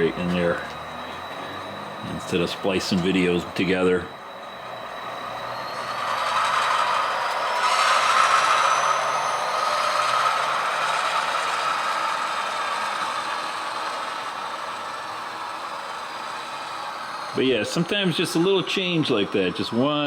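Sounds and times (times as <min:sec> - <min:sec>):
model train whirring and rattling: 0:00.0 - 0:20.0.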